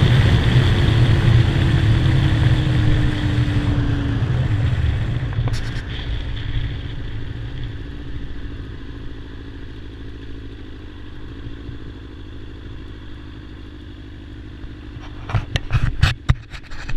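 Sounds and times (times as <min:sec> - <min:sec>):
motorcycle engine running at low revs: 0:00.0 - 0:16.9.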